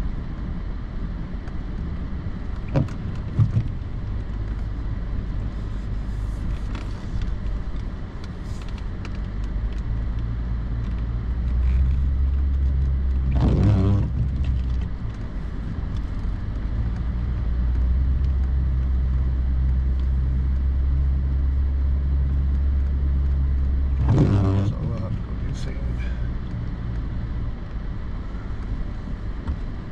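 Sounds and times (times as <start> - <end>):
pickup truck engine droning: 11.4 - 16.8.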